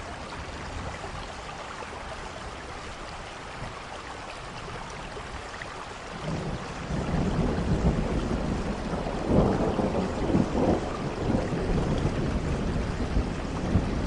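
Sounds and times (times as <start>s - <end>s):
steady rain: 0.0s - 14.0s
low rumble of thunder: 6.1s - 14.0s.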